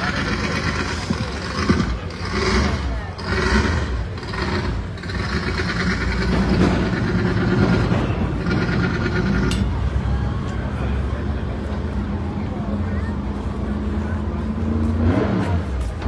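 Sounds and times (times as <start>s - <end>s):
car engine revving: 0.0s - 9.7s, 13.8s - 16.0s
voices: 0.0s - 16.0s.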